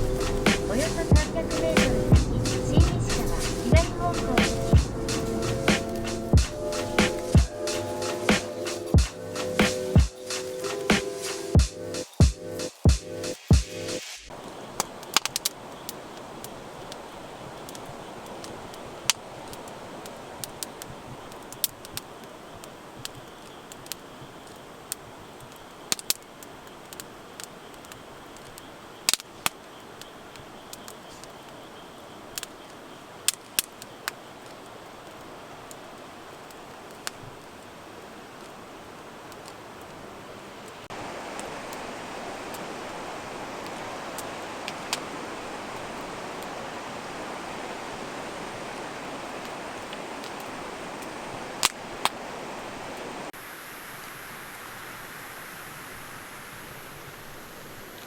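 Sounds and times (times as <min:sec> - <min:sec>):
raindrops tapping: 0:00.0 - 0:31.7, 0:40.6 - 0:52.2
rain hissing: 0:00.0 - 0:58.0.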